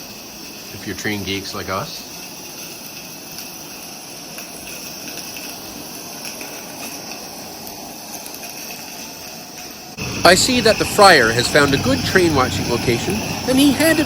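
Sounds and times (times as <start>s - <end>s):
insects droning: 0.0s - 14.0s
steam locomotive hissing: 0.0s - 14.0s.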